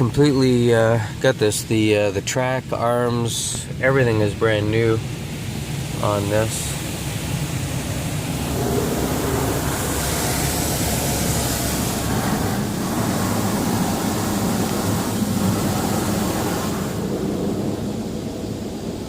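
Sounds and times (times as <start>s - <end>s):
car wash machinery hum: 0.0s - 19.0s
water spray on car body: 5.0s - 19.0s.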